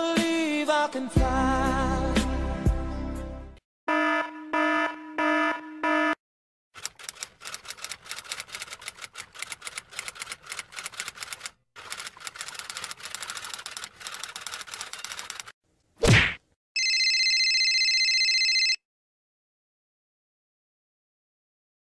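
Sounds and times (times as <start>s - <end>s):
rapid typing clatter: 6.8s - 15.5s.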